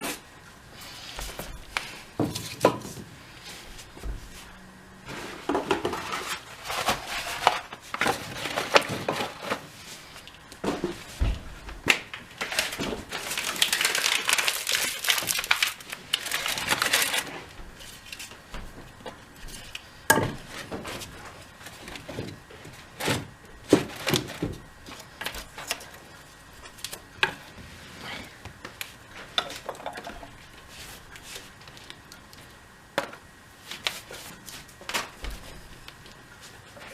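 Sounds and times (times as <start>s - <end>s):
paper and cardboard rustling: 0.8s - 26.1s.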